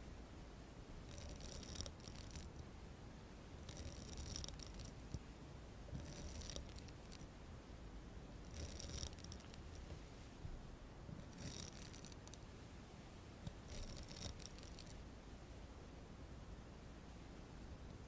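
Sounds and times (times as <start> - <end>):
soft scratchy bursts: 1.0 - 2.8, 3.6 - 5.3, 5.9 - 7.4, 8.4 - 15.2.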